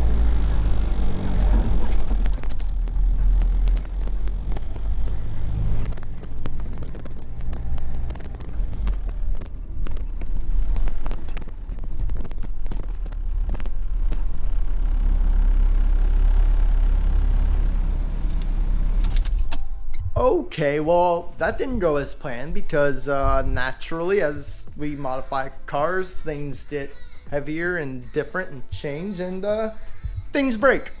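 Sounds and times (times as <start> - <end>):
car engine rumbling: 0.0 - 31.0
road noise: 0.0 - 31.0
wind buffeting microphone: 21.1 - 24.9, 29.9 - 31.0.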